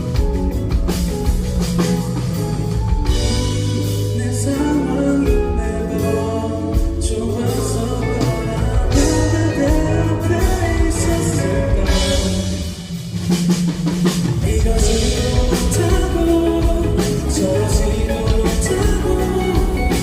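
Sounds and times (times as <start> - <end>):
pop-rock band playing: 0.0 - 20.0
person singing: 3.2 - 12.9, 14.4 - 20.0.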